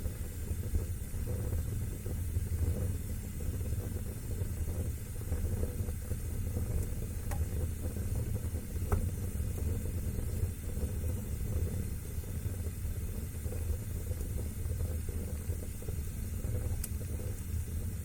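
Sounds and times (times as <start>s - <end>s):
fire burning: 0.0s - 18.0s
fire crackling pops: 0.0s - 18.0s.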